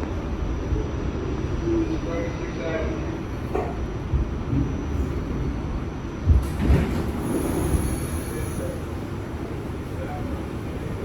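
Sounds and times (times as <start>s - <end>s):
subway train wheels rumbling: 0.0s - 11.0s
faint high wheel squeal: 7.2s - 8.9s.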